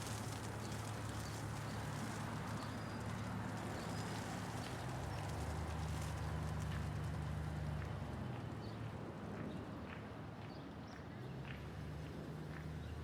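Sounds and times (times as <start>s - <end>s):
hail falling: 0.0s - 7.1s
hum of city traffic: 0.0s - 13.0s.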